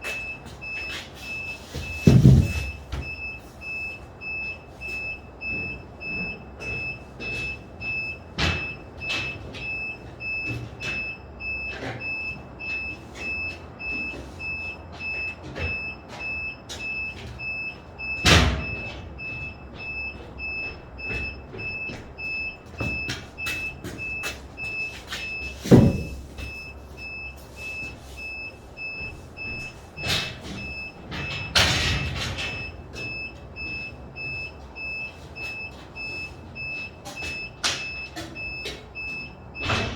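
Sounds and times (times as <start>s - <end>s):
electronic warning beeper: 0.0s - 39.9s
knocks and thuds: 1.8s - 3.4s, 18.2s - 26.7s.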